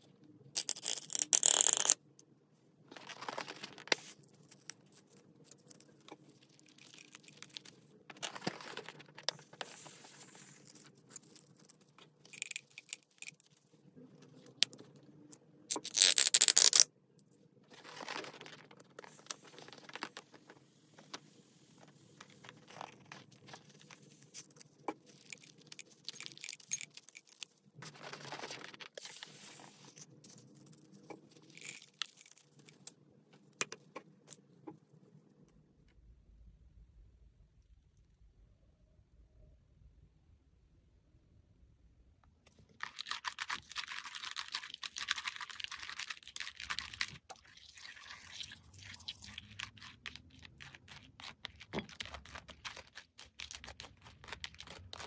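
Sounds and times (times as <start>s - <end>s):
slime squishing and crackling: 42.8s - 55.0s.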